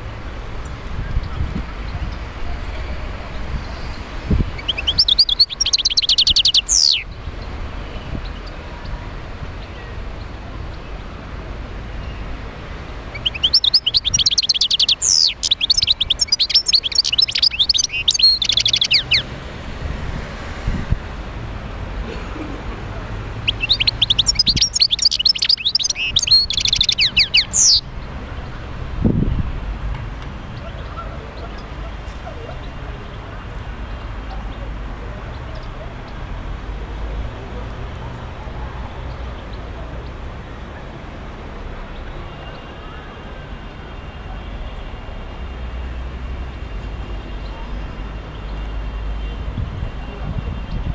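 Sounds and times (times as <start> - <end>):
goldfinch twittering trills: 4.6 - 7.1, 13.1 - 19.3, 23.4 - 27.9.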